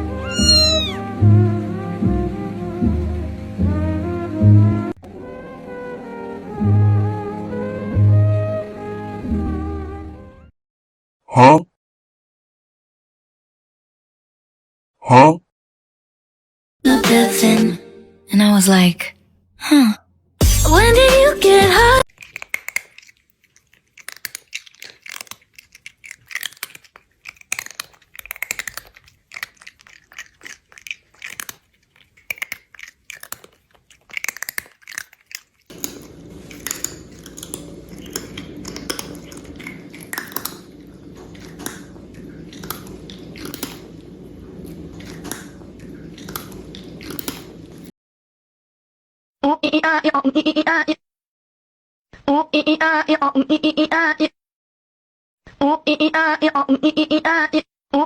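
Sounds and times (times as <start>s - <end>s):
cat crunching dry kibble: 22.1s - 47.9s
steady low hum: 35.7s - 47.9s.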